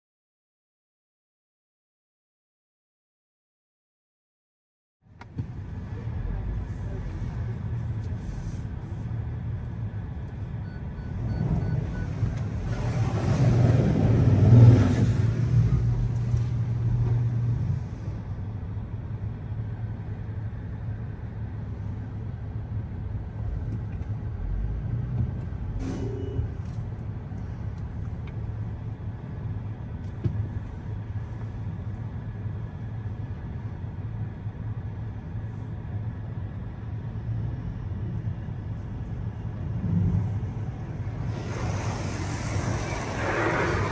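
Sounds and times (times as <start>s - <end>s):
vehicle engine humming: 5.1s - 43.9s
vehicle rushing past: 11.2s - 17.7s, 39.6s - 43.9s.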